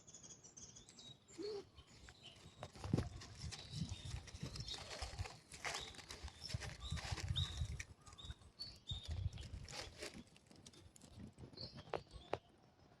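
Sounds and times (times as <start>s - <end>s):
footsteps on a trail: 2.2s - 8.0s.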